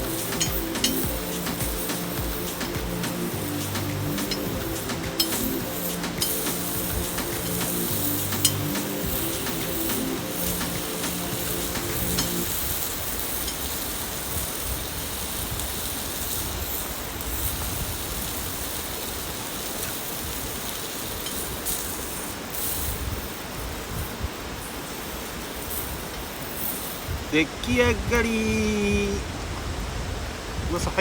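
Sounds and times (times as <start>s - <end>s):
background music: 0.0s - 12.8s
faint clinks: 0.0s - 15.3s, 15.9s - 27.3s
mountain stream rushing: 0.0s - 31.0s.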